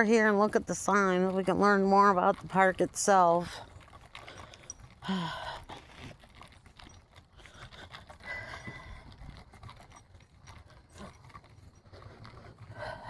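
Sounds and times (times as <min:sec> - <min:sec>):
footsteps on path: 0:00.0 - 0:13.0.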